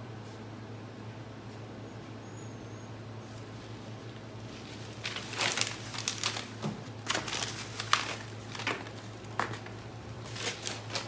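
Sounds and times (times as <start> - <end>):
packaging crinkling and rustling: 3.4 - 11.0.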